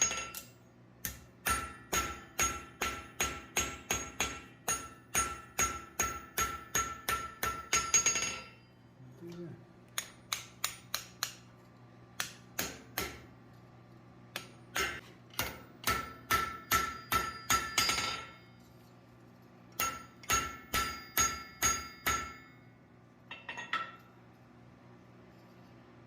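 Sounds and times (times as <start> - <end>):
hammer striking steel on anvil: 0.0 - 8.6, 10.0 - 11.4, 12.2 - 13.4, 14.3 - 18.6, 19.7 - 22.7.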